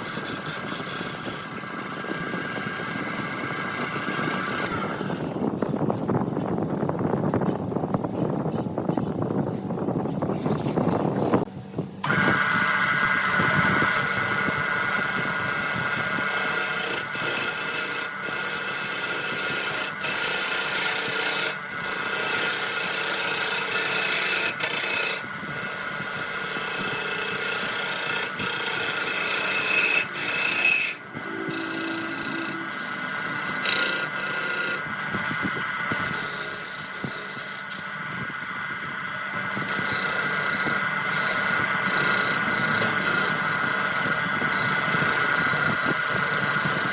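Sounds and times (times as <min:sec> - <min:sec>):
turning tool scraping wood: 0:00.0 - 0:02.0, 0:13.5 - 0:38.4, 0:39.4 - 0:46.9
wood lathe whine: 0:00.0 - 0:05.6, 0:12.0 - 0:46.9.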